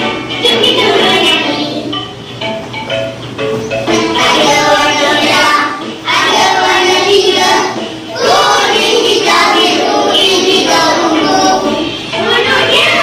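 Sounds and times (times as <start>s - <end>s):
children singing in unison: 3.9s - 13.0s.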